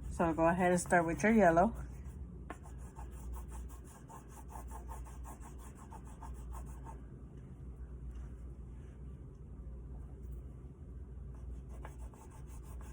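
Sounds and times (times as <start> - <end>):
oil pastel rubbing on paper: 0.0 - 7.0, 11.5 - 12.9.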